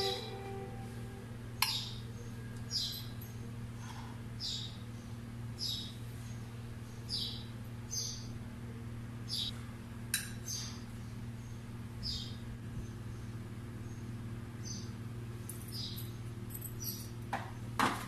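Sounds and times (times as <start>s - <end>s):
steady low hum: 0.0s - 17.8s.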